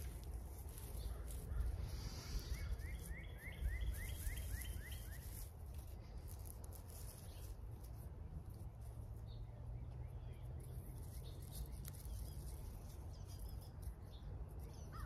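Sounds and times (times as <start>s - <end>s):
bird chirping: 0.7s - 5.4s, 9.2s - 15.0s.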